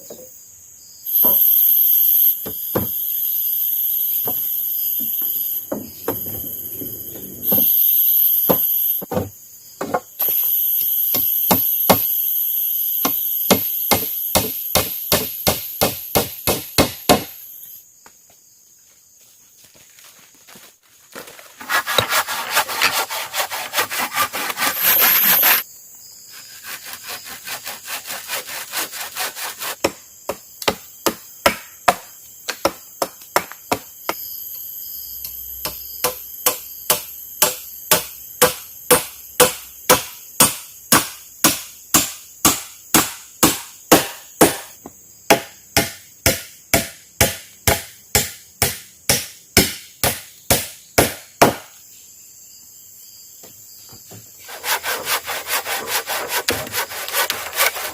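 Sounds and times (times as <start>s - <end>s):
insects buzzing: 0.0s - 57.9s
hand saw sawing wood: 21.4s - 25.6s, 26.3s - 29.8s, 54.4s - 57.9s.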